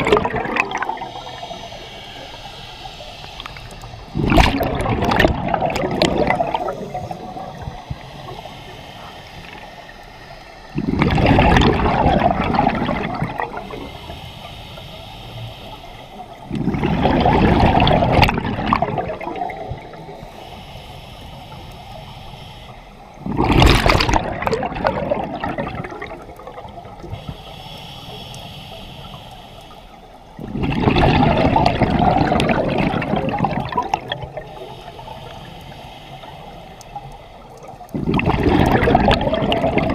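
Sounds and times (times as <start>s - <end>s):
diver exhaling bubbles underwater: 0.0s - 2.3s, 3.4s - 8.4s, 10.8s - 13.9s, 16.5s - 20.1s, 23.2s - 27.1s, 30.4s - 34.5s, 37.9s - 39.9s.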